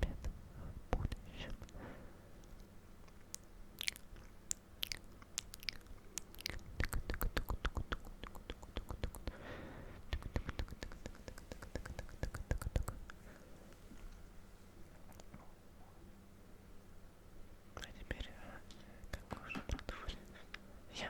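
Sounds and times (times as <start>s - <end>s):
wet mouth clicks and smacks: 2.4s - 9.4s, 10.1s - 13.8s.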